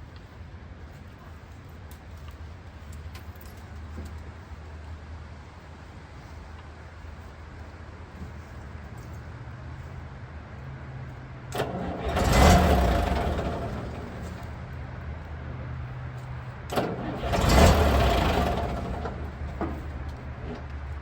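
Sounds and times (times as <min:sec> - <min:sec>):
tractor engine running and revving: 0:11.5 - 0:21.0.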